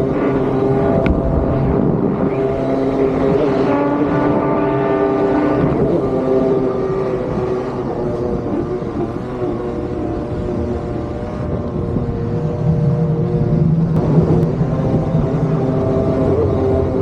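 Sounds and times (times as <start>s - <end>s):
deeper hum: 0.0s - 4.6s
motor drone on water: 0.0s - 17.0s.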